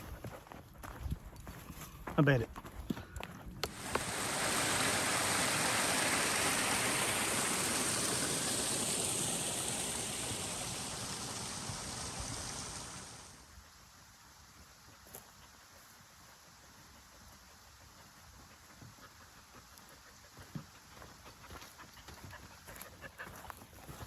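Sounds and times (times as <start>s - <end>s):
rushing creek water: 3.6s - 13.5s.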